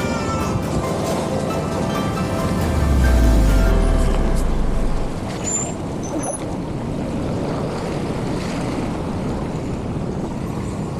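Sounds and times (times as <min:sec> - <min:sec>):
background music: 0:00.0 - 0:05.4
traffic rushing noise: 0:00.7 - 0:06.1.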